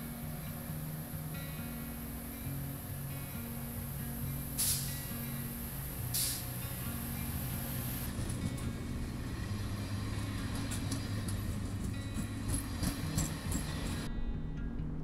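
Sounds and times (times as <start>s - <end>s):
train rolling rumble: 0.0s - 14.1s
guitar music: 0.0s - 15.0s
wheels clattering on rails: 5.6s - 14.1s.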